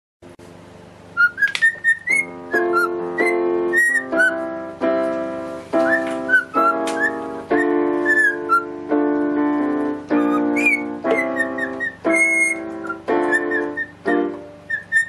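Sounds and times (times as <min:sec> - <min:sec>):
parrot whistling a tune: 0:01.2 - 0:04.4, 0:05.8 - 0:08.7, 0:10.2 - 0:15.0
music with sustained chords: 0:02.1 - 0:14.8.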